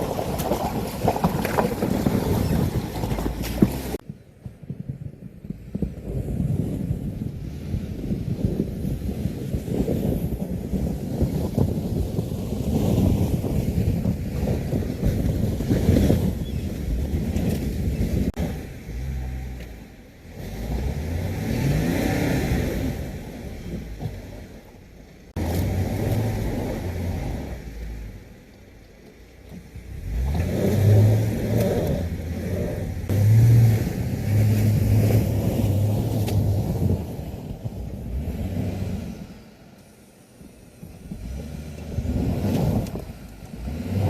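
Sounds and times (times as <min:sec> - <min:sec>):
engine revving: 0:18.2 - 0:24.5, 0:25.4 - 0:28.3, 0:29.5 - 0:37.2, 0:37.8 - 0:39.6, 0:41.0 - 0:44.0.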